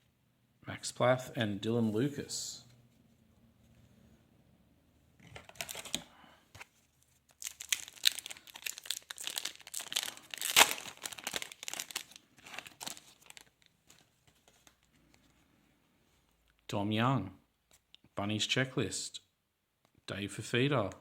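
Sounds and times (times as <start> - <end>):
wrapper tearing and crinkling: 5.4 - 6.0, 7.3 - 14.1.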